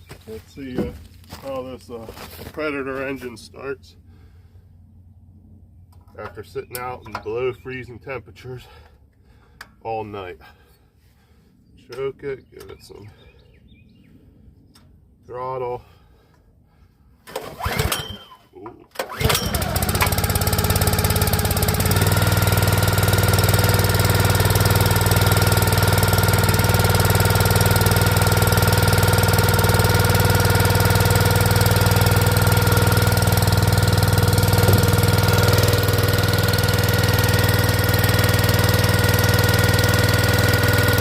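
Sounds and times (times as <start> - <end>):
small gas engine running: 17.2 - 18.4, 19.0 - 41.0.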